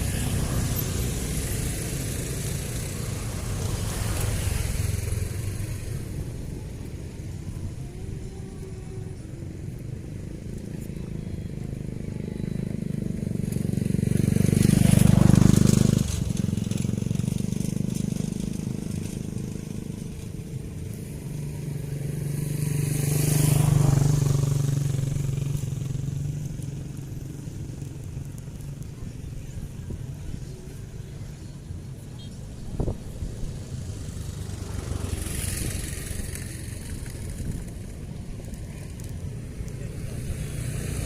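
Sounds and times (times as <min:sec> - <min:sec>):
vehicle engines passing: 0:00.0 - 0:41.0.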